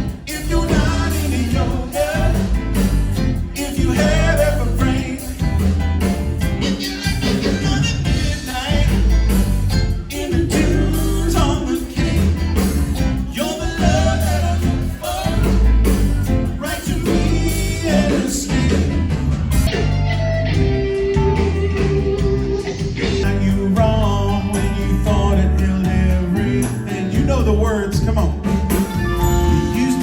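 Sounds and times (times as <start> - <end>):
person singing: 0.0 - 2.6, 3.5 - 5.6, 6.6 - 9.1, 10.0 - 16.0, 16.6 - 19.0, 22.8 - 28.6, 29.2 - 30.0
bass: 0.0 - 30.0
guitar: 0.0 - 30.0
steady drum beat: 0.0 - 30.0.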